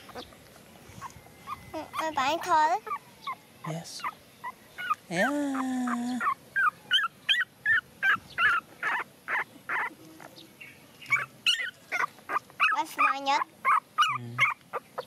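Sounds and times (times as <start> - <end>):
puppies whimpering: 1.0 - 10.3, 11.0 - 15.0.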